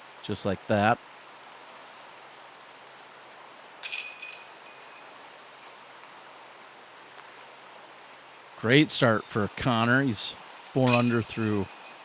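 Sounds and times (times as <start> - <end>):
disc striking metal chains: 3.8 - 5.2, 10.8 - 12.0.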